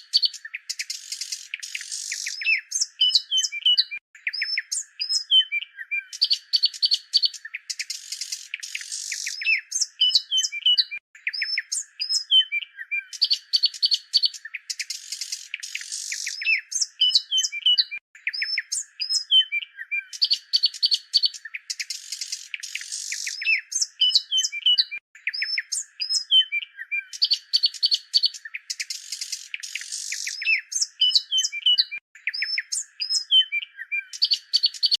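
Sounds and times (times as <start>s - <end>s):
birds chirping and trilling: 0.0s - 35.0s.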